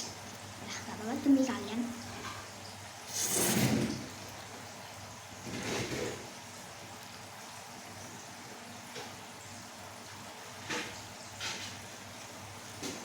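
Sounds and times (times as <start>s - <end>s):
noodles being slurped: 3.1s - 4.0s.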